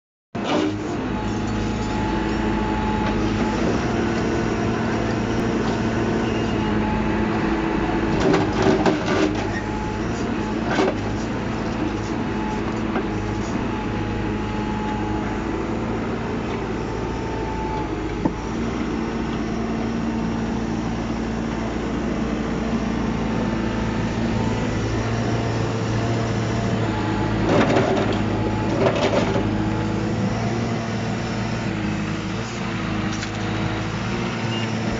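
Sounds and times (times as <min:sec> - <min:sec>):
excavator diesel engine running: 0:00.4 - 0:34.9.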